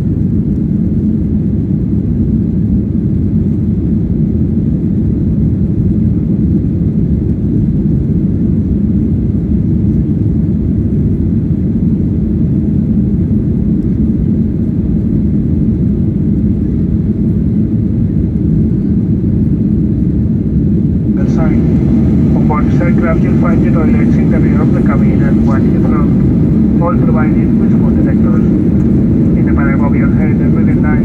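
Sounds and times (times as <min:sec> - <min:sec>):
airplane cabin rumble: 0:20.0 - 0:31.0.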